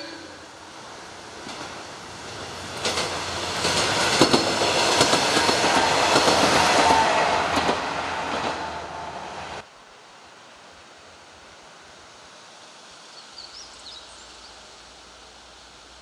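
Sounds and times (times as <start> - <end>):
railcar wheels clacking over rail joints: 1.3 - 8.7.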